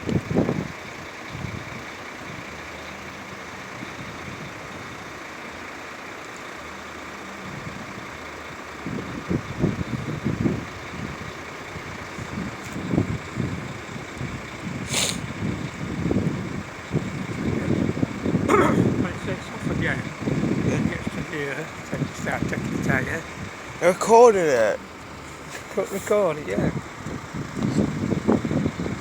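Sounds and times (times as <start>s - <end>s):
wind buffeting microphone: 0.0s - 2.6s, 7.4s - 8.2s, 8.8s - 29.0s
vehicle engine noise: 0.0s - 29.0s.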